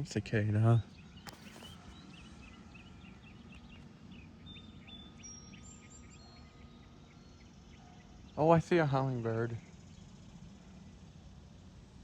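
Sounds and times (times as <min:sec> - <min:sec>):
faint bird chirps: 0:00.9 - 0:08.5.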